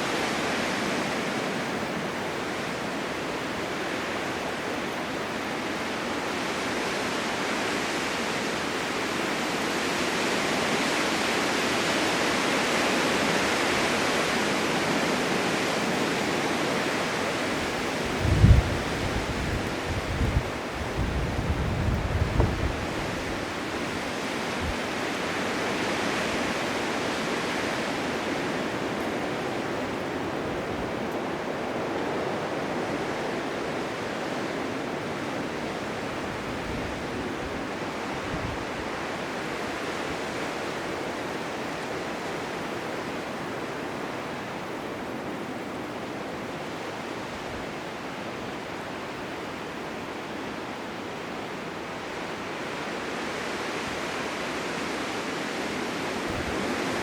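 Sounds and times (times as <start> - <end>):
blizzard wind rushing: 0.0 - 57.0.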